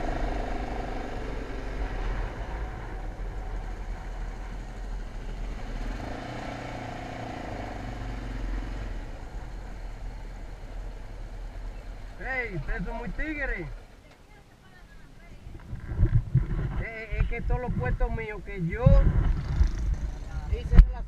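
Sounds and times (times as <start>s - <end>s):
motorcycle engine running: 0.0s - 6.5s, 18.8s - 21.0s.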